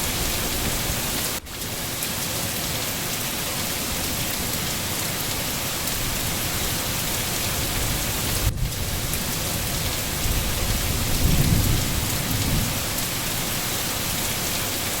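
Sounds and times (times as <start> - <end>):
rain falling: 0.0 - 15.0
thunder rumble: 7.8 - 12.9.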